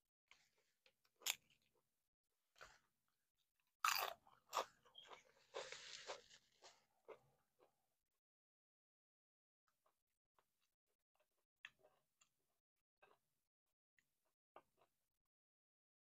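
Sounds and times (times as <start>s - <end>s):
person crunching and chewing food: 0.3s - 1.9s, 3.6s - 7.8s.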